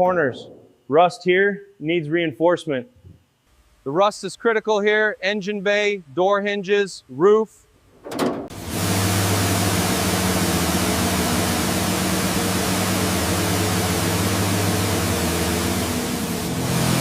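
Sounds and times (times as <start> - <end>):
low steady hum: 0.0 - 11.7
loud steady hiss: 8.5 - 17.0.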